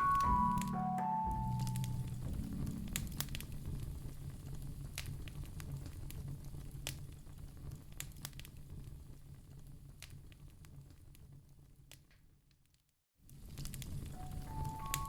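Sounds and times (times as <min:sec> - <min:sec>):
fire low rumble: 0:01.3 - 0:11.9, 0:13.3 - 0:15.0
burning logs crackling: 0:01.7 - 0:12.0, 0:13.3 - 0:15.0.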